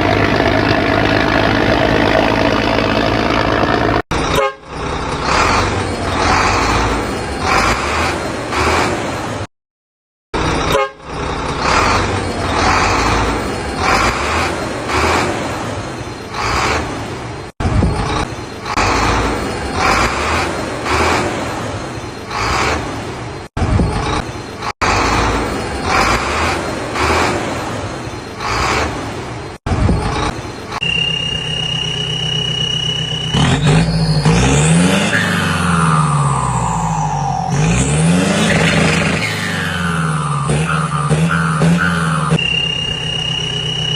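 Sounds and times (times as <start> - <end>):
high engine whine revving: 0.0 - 8.9, 29.8 - 43.9
diesel earthmoving machinery rumbling: 0.0 - 9.5, 10.4 - 43.9.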